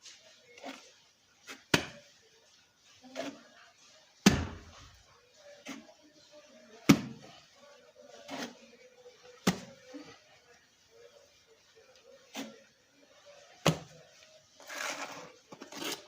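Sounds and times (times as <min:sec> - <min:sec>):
mortar slapping onto brick: 0:04.2 - 0:04.6.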